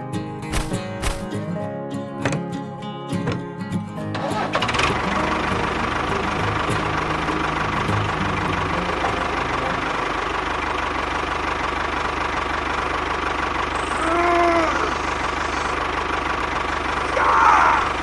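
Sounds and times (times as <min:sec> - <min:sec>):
engine idling with knock: 0:04.3 - 0:18.0.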